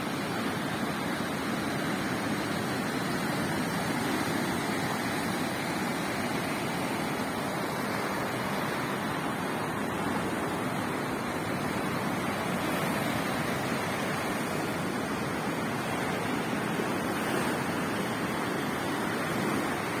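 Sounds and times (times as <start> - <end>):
sea waves breaking on beach: 0.0 - 20.0.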